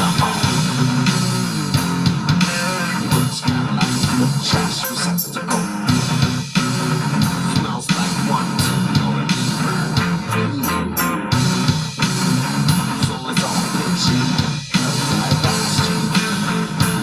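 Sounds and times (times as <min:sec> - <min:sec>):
bass guitar: 0:00.0 - 0:17.0
drum kit: 0:00.0 - 0:17.0
electric guitars: 0:00.0 - 0:17.0.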